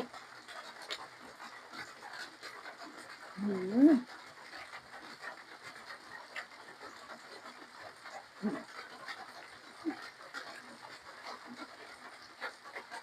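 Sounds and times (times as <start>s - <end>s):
chewing food: 0.0s - 13.0s
person humming mm: 8.4s - 8.6s.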